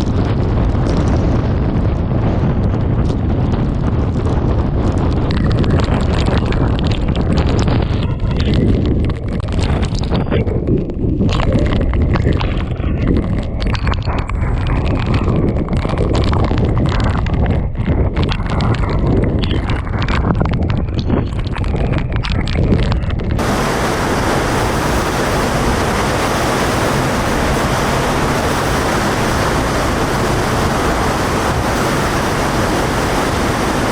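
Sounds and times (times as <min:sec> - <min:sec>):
torrential rain lashing: 0:00.0 - 0:10.1, 0:23.3 - 0:33.9
wind gusting against microphone: 0:00.0 - 0:33.9.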